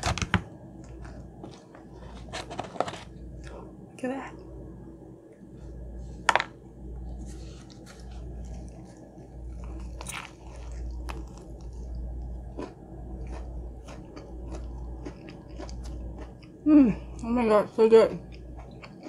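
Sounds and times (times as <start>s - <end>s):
crunchy biting and chewing: 7.7s - 16.6s.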